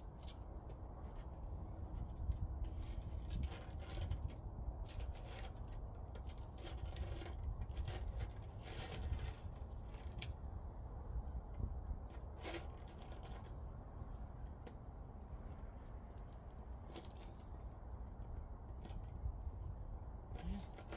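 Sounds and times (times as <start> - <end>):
low steady rumble: 0.0 - 20.9
clicks and scrapes of parts handled: 14.4 - 19.1.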